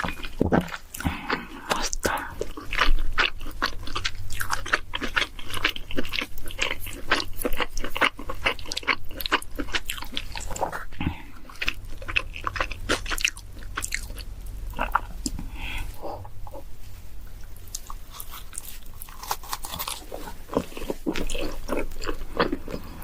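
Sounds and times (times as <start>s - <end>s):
chewing pizza: 0.0s - 16.7s, 17.3s - 23.0s
crisp crust crunches: 17.7s - 23.0s.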